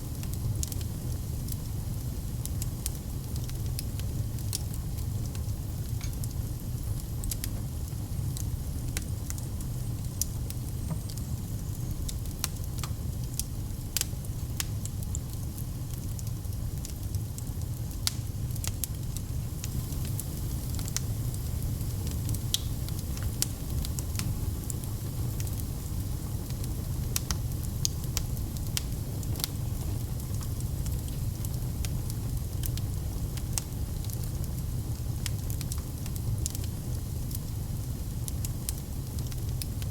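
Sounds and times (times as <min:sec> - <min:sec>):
wood fire crackling: 0:00.1 - 0:39.9.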